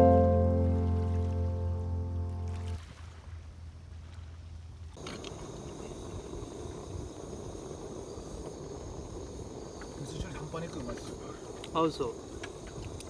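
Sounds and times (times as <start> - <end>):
faint low hum: 0.0 - 3.2
insects chirring: 5.0 - 13.0.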